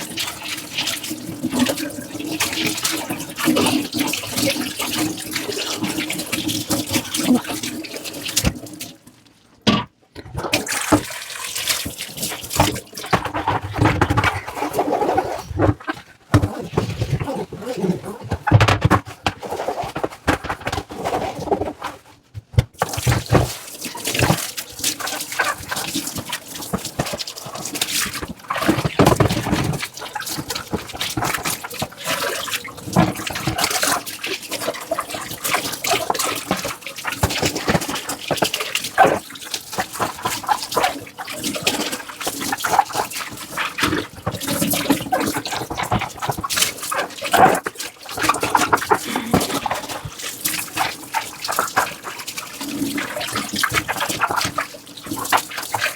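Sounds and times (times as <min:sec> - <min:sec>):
running water: 0:00.0 - 0:09.3, 0:22.8 - 0:55.9
scrubbing dishes: 0:09.7 - 0:55.9.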